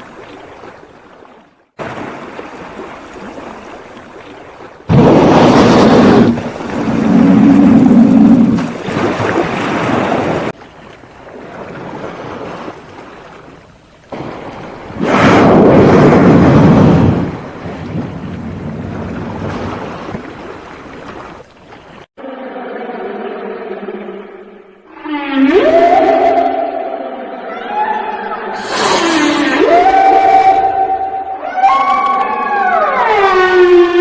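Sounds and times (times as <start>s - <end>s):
sea waves rushing: 0.0s - 22.0s, 24.3s - 34.0s
loud whooshing surges: 28.6s - 29.8s.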